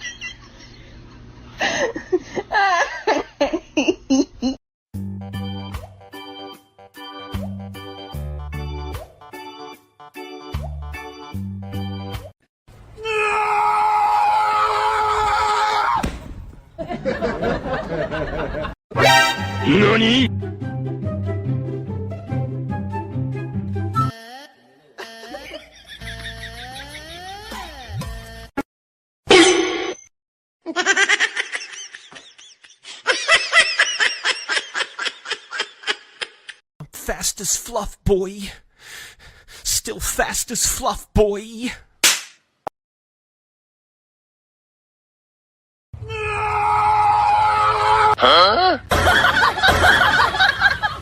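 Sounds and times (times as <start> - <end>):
organ-like keyboard chords: 5.0 - 12.2
loud held scream: 13.0 - 16.0, 46.0 - 48.4
person laughing hard: 25.0 - 28.0, 30.7 - 36.6.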